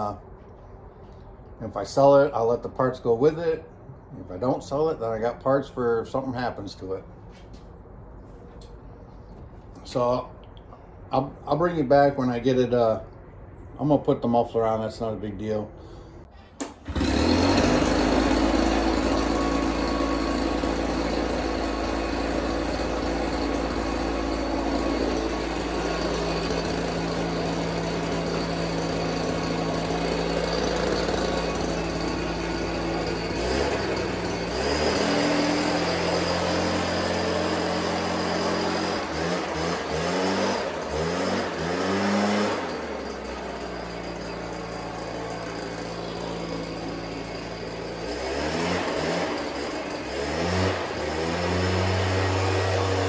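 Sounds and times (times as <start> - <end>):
leaf blower engine revving: 16.5 - 53.0.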